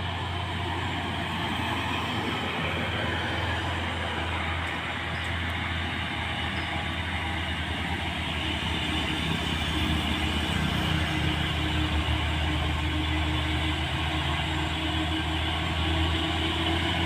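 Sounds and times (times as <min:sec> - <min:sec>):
heavy diesel truck engine drone: 0:00.0 - 0:17.0.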